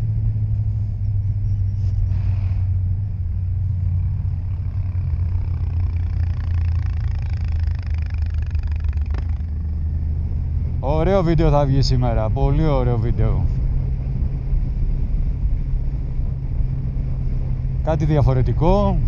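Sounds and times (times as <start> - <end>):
motorcycle engine cruising: 0.0 - 19.0.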